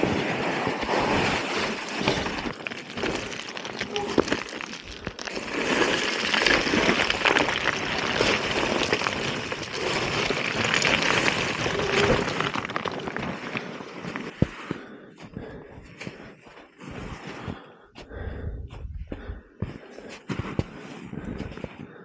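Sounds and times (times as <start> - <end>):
bike tyres crunching on gravel: 0.1 - 14.8.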